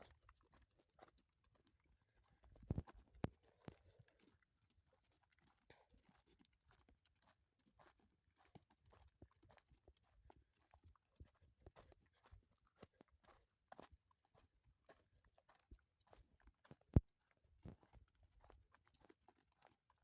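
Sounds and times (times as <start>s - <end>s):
donkey hooves clopping: 5.7s - 20.0s.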